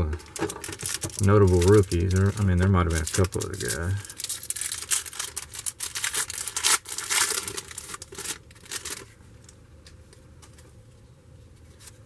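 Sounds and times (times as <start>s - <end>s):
plastic wrapper crinkling and tearing: 0.0s - 9.6s.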